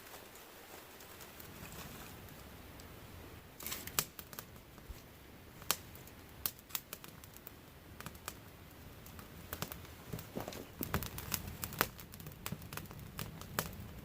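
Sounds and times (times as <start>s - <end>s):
dry kindling snapping: 3.6s - 14.0s.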